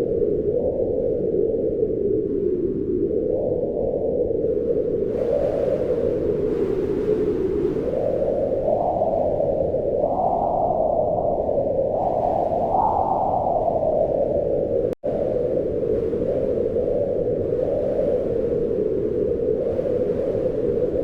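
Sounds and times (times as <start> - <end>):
wind in moaning gusts: 0.0 - 21.0.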